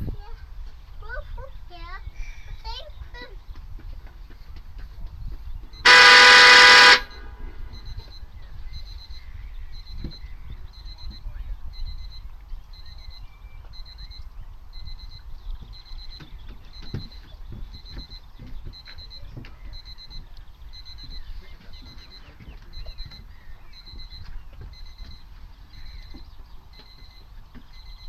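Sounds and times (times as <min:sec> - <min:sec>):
wind rumble on microphone: 0:00.0 - 0:05.9, 0:07.0 - 0:28.0
electronic timer beeping: 0:05.8 - 0:28.0.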